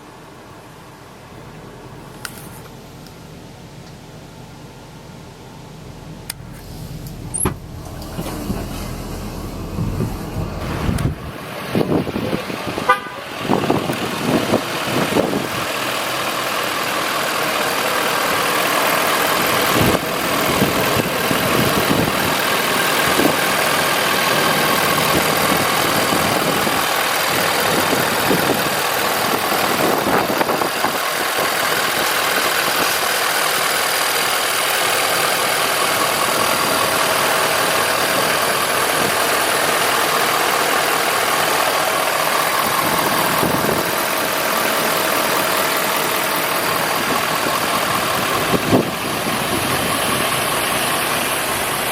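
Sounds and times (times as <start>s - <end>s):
truck engine idling: 0.0s - 51.9s
engine knocks: 6.1s - 12.6s, 18.1s - 51.9s.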